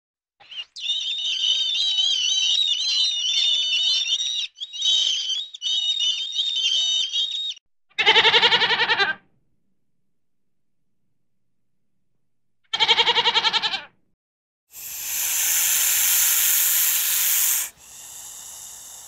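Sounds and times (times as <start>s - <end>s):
goat bleating: 8.0s - 9.2s, 12.7s - 13.9s
flock of birds chattering: 14.8s - 19.0s.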